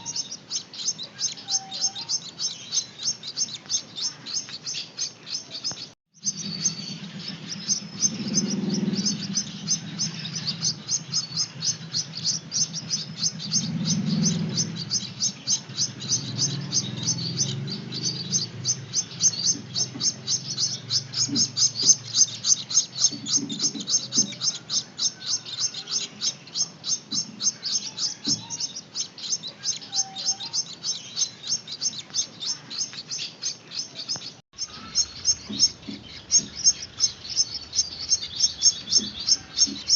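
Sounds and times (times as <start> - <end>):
chicks begging chirps: 0.0 - 39.9.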